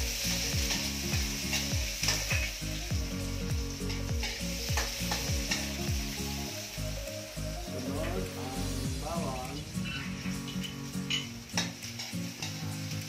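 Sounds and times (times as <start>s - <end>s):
low regular beat: 0.0s - 11.0s
onions sizzling in hot oil: 0.0s - 13.0s
spatula scraping and tapping a wok: 0.6s - 2.6s, 10.5s - 12.8s.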